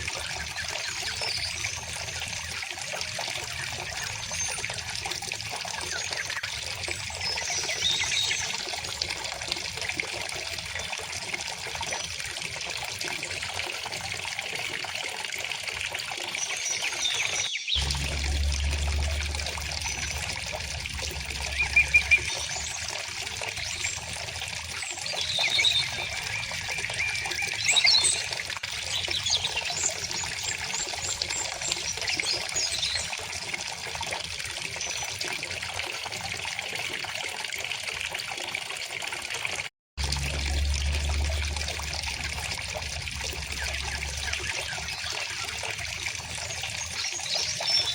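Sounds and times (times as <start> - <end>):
stream flowing: 0.0 - 47.9
songbirds chirping: 16.4 - 33.1
low rumble: 17.8 - 23.2, 40.0 - 46.4.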